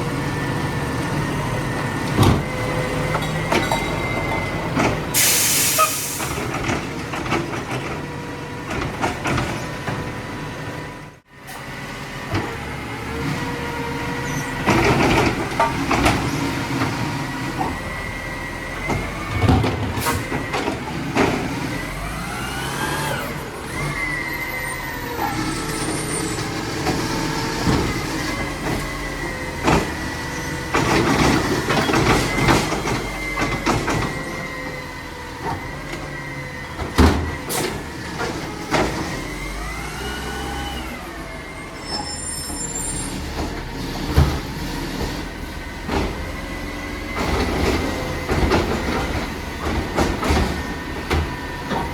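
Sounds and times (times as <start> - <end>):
garbage truck engine: 0.0 - 51.9
knocks and clanks: 47.1 - 51.9.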